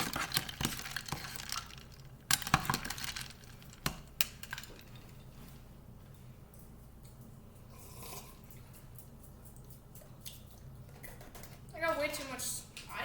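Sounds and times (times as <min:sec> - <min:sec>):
ice cubes clinking into glass: 0:00.0 - 0:05.1.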